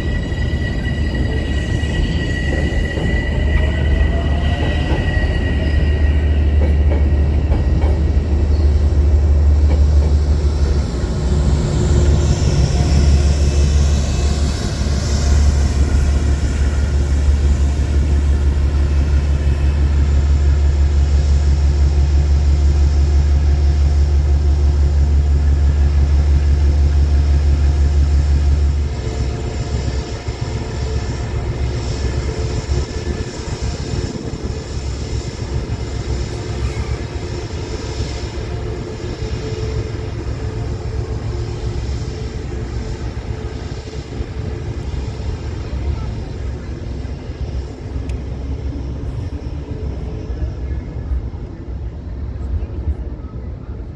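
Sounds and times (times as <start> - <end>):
train wheel squeal: 0.0 - 51.7
train rumbling: 0.0 - 53.9.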